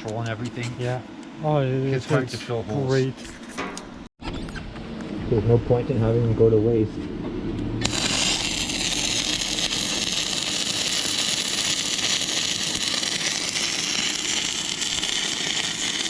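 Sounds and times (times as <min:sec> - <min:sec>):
welding arc crackling hiss: 0:07.8 - 0:16.0.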